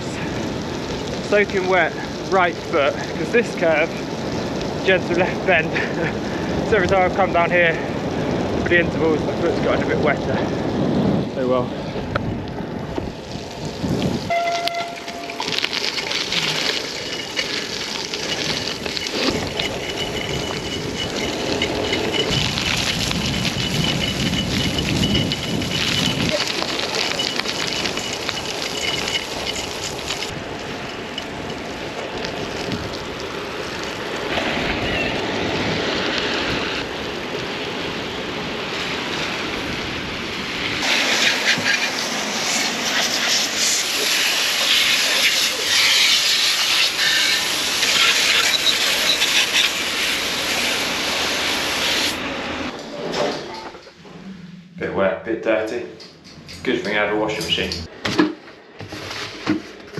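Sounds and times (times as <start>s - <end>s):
tyres hissing on wet road: 0.0s - 12.0s, 13.0s - 52.7s
wind buffeting microphone: 0.0s - 14.5s, 15.1s - 46.4s.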